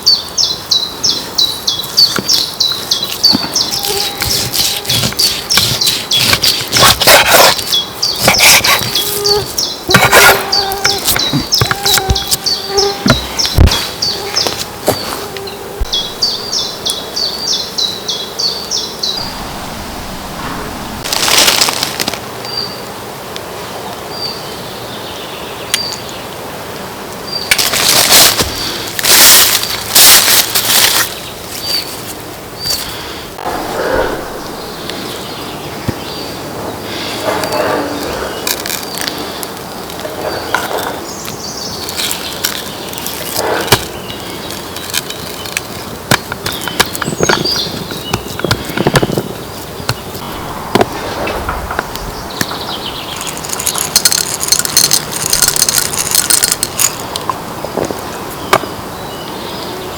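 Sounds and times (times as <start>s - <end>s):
scraping or rustling: 2.1s - 16.6s, 19.2s - 22.3s, 27.5s - 35.2s, 37.2s - 58.6s
small bird chirping: 7.6s - 19.4s
bursts of rustling: 19.2s - 22.4s, 27.5s - 35.1s.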